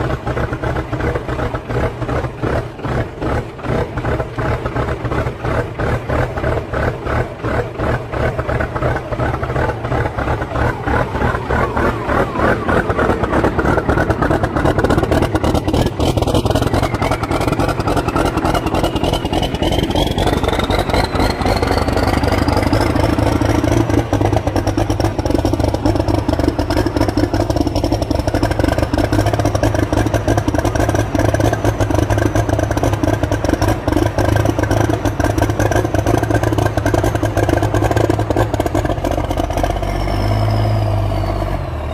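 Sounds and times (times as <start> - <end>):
diesel engine clatter: 0.0 - 41.9
whine climbing in pitch: 9.2 - 25.3.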